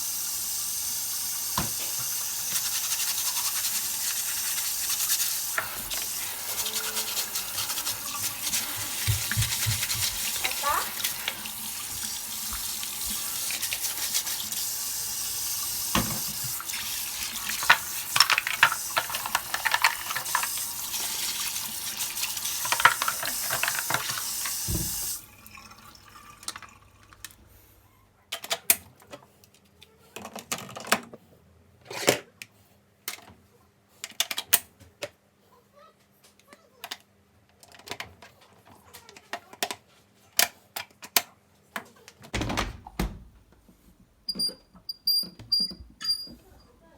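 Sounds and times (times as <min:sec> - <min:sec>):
water running: 0:00.0 - 0:27.7.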